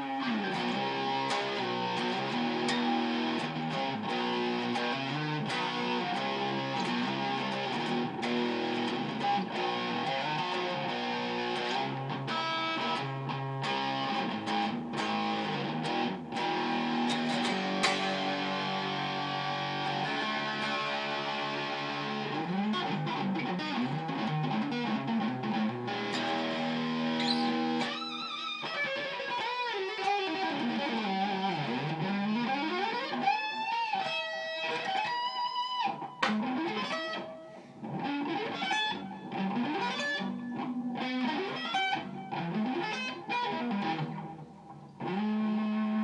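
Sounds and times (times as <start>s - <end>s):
overdriven electric guitar: 0.0s - 46.0s.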